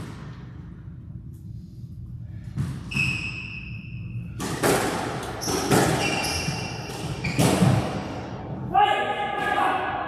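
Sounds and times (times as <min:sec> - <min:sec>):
shoes squeaking on wooden floor: 0:05.4 - 0:07.6.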